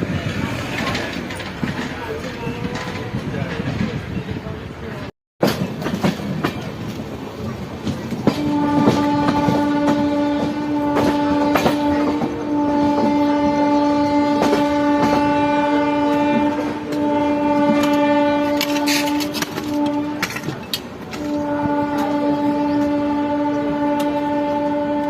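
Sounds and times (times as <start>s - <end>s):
train wheels clattering: 5.4s - 12.4s, 14.2s - 25.0s
train horn blast: 8.2s - 25.0s.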